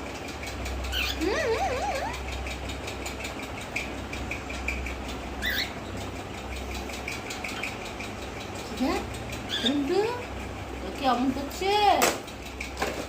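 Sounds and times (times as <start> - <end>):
parrot chirping: 0.4 - 10.6.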